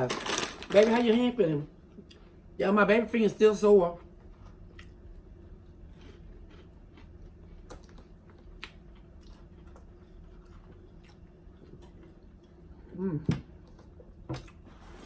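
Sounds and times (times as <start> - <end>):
quiet chewing: 4.0 - 15.0.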